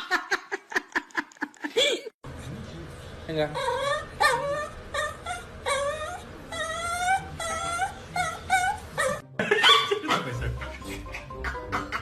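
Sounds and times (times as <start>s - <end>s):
puppy whining: 3.5s - 10.3s.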